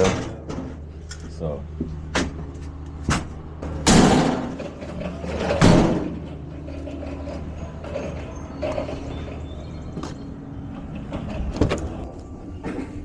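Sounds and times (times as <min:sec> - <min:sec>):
low engine hum: 0:00.0 - 0:13.0
loud bangs: 0:03.1 - 0:04.8.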